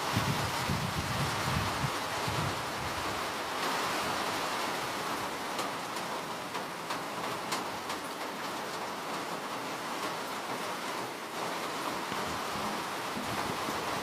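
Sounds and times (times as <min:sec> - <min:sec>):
steady rain hiss: 0:00.0 - 0:14.0
raindrops ticking: 0:05.0 - 0:14.0.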